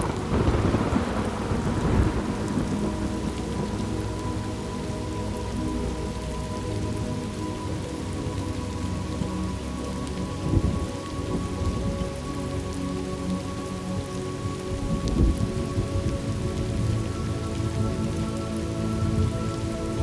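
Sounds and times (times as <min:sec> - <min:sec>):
low thunder rumbles: 0:00.0 - 0:05.0
steady rain: 0:00.0 - 0:20.0.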